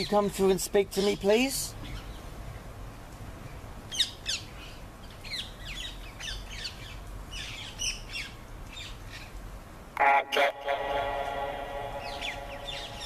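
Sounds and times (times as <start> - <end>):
small birds chirping: 0.0 - 2.7, 3.8 - 9.5, 11.9 - 13.0
steady low rumble: 9.9 - 13.0.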